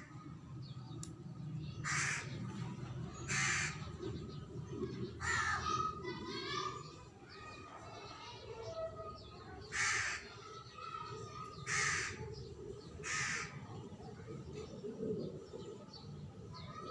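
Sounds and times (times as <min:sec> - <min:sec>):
faint birds chirping: 0:00.0 - 0:16.9
bird cawing: 0:01.8 - 0:02.4, 0:03.3 - 0:03.9, 0:09.7 - 0:10.5, 0:11.6 - 0:12.3, 0:13.0 - 0:13.6.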